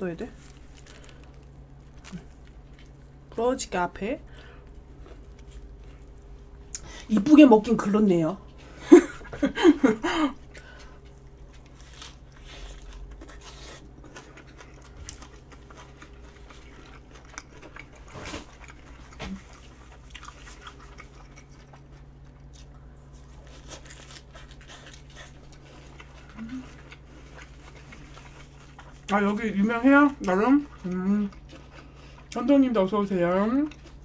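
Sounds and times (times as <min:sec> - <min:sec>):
faint steady hum: 0:00.0 - 0:34.0
crunching and mouth clicks: 0:10.4 - 0:29.2.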